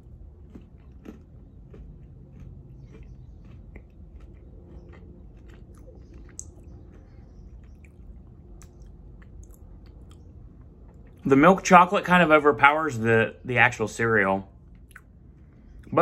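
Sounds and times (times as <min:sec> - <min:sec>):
person chewing crunchy candy: 0:00.0 - 0:11.3.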